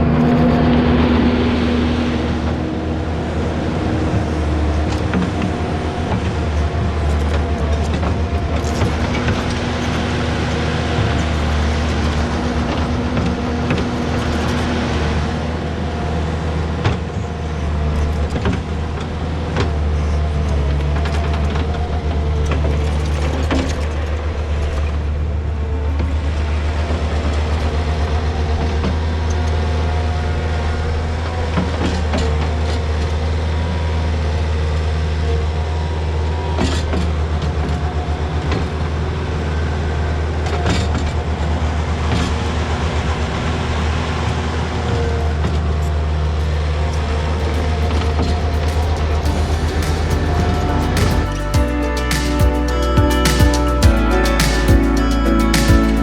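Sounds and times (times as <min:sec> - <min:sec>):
diesel engine running: 0:45.9 - 0:56.0.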